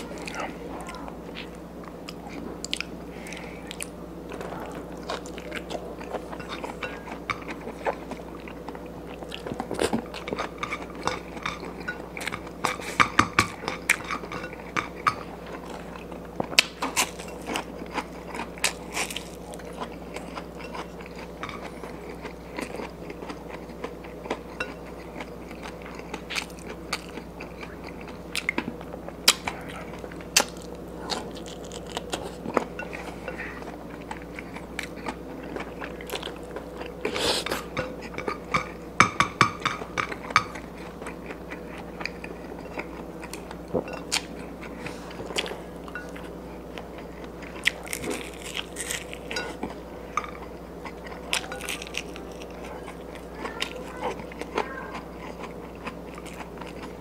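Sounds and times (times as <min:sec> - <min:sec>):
person chewing and smacking: 0:00.0 - 0:57.0.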